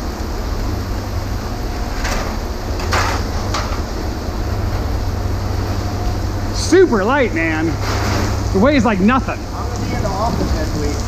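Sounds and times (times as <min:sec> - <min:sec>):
steady low rumble: 0:00.0 - 0:11.0
scrap paneling scraping clatters: 0:01.8 - 0:04.0, 0:07.7 - 0:08.6, 0:09.6 - 0:11.0.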